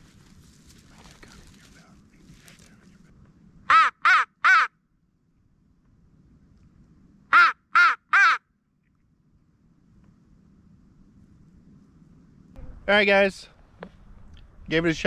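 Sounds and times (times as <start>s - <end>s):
crow cawing: 3.7s - 4.7s, 7.3s - 8.4s.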